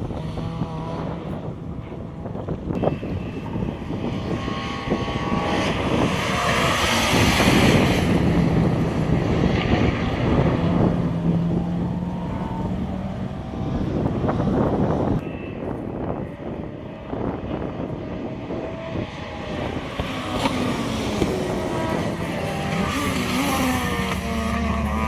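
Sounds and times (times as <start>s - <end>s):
vehicle engine passing by: 2.8s - 15.2s.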